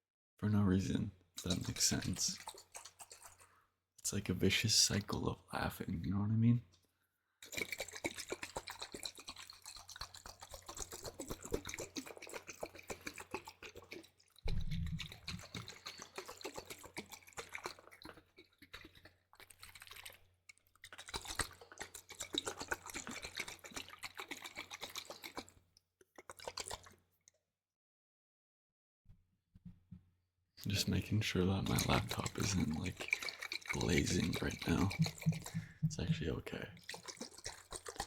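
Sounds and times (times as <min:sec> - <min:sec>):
wet liquid squishing and dripping: 0:01.4 - 0:05.2, 0:06.7 - 0:27.4, 0:30.7 - 0:38.0
low thump: 0:14.5 - 0:15.2.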